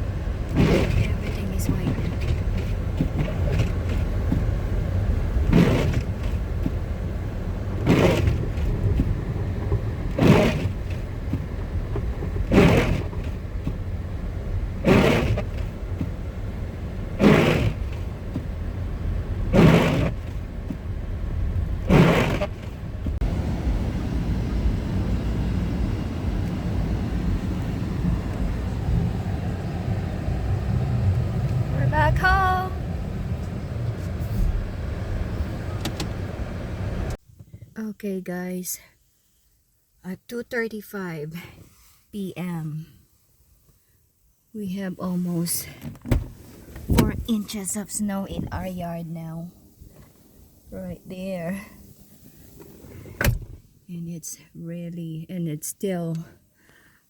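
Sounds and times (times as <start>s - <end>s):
car road rumble inside cabin: 0.0s - 37.2s, 45.1s - 49.6s
windshield wipers sweeping: 0.0s - 37.2s, 45.3s - 49.0s.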